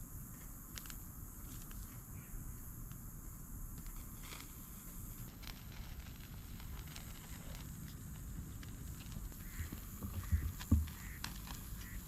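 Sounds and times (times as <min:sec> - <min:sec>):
steady high hiss: 0:00.0 - 0:12.0
faint clicks and crackles: 0:03.8 - 0:12.0.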